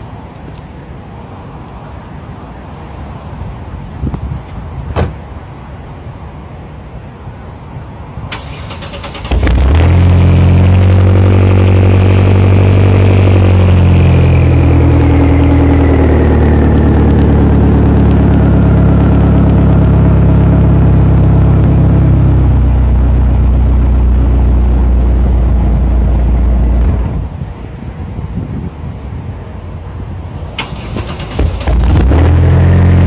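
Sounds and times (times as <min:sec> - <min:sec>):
high engine whine: 0:05.0 - 0:33.0
loud car exhaust drone: 0:08.4 - 0:27.8, 0:29.9 - 0:33.0.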